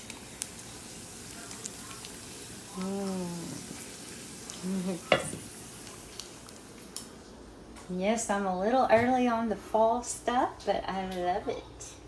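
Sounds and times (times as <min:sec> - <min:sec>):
potatoes sizzling in a skillet: 0:00.0 - 0:06.7.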